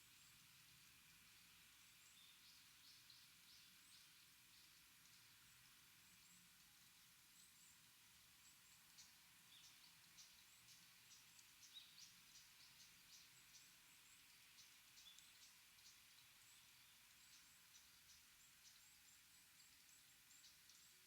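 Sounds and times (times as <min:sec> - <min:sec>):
soft steady hiss: 0:00.0 - 0:21.0
small birds chirping: 0:07.3 - 0:21.0.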